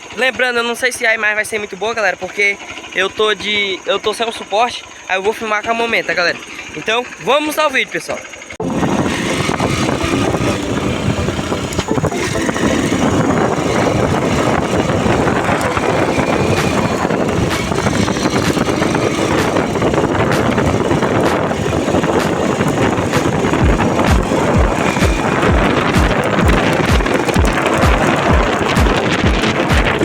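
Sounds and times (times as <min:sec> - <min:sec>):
motorcycle engine running: 0:00.0 - 0:30.0
wind over microphone: 0:08.6 - 0:30.0.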